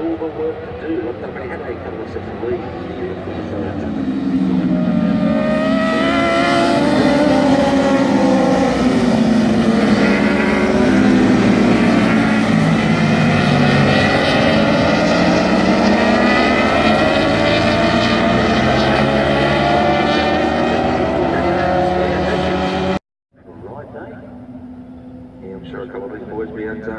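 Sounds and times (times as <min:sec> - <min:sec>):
racing motorcycle engines revving: 0:00.0 - 0:26.9.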